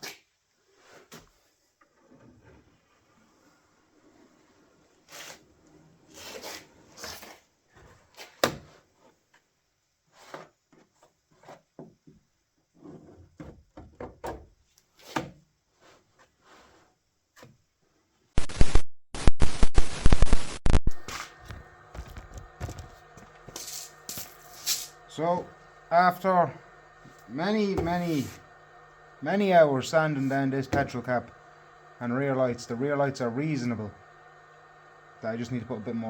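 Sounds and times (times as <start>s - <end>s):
loud rasping noise: 21.0s - 36.0s.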